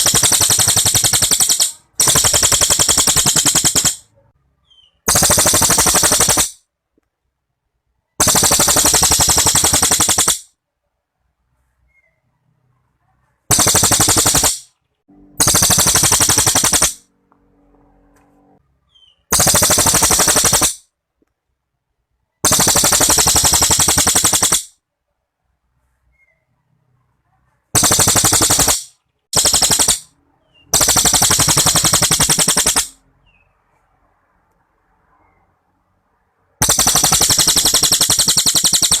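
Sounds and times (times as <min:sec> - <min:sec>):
songbird rattling trills: 0:00.0 - 0:04.0, 0:36.6 - 0:39.0.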